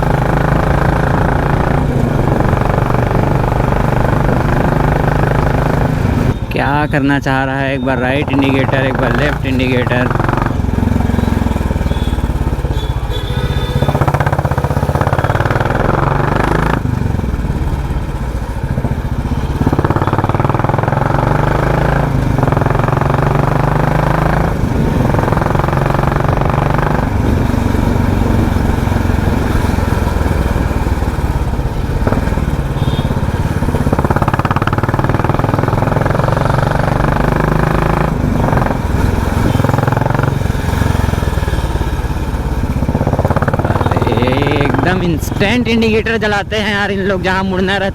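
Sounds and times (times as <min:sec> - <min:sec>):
motorcycle engine with loud exhaust: 0:00.0 - 0:47.9.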